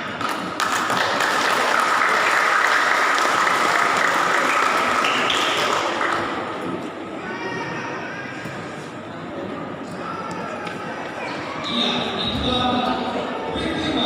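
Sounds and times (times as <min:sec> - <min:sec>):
audience applauding: 0:00.2 - 0:06.6.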